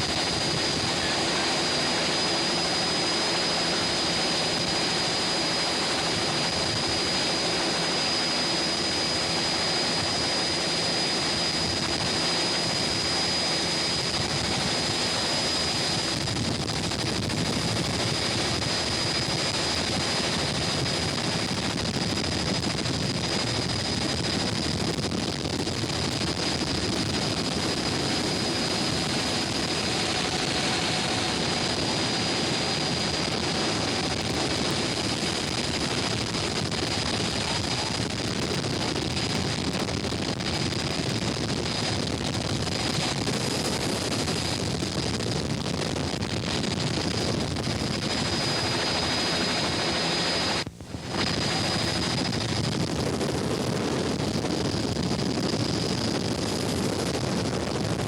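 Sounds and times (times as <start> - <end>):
thin high whine: 0.0 - 41.0
vehicle engine drone: 0.0 - 44.8.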